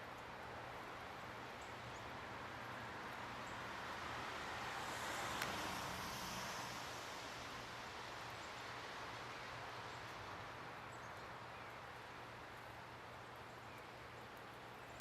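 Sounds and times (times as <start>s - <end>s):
tiny faint high ticks: 0.0s - 4.1s, 4.9s - 6.8s, 9.4s - 15.0s.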